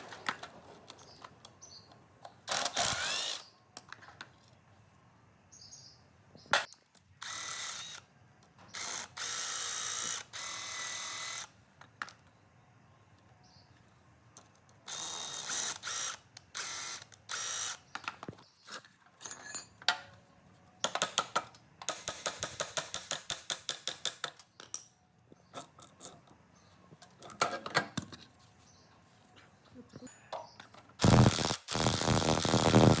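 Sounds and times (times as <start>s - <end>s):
whirring power tool: 2.5s - 3.5s, 7.2s - 8.1s, 8.7s - 11.5s, 14.9s - 17.8s, 31.0s - 33.0s.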